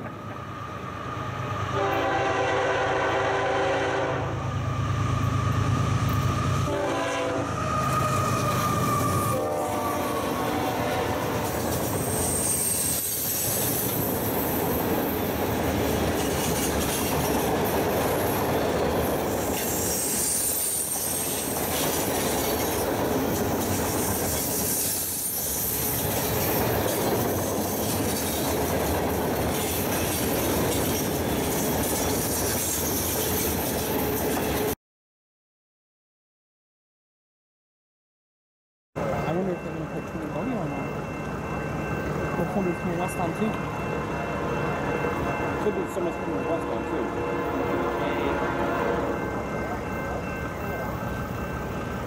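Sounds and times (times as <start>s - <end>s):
freight train rumbling past: 0.0s - 34.8s, 39.0s - 52.0s
high wheel squeals: 7.4s - 17.4s, 18.2s - 28.6s.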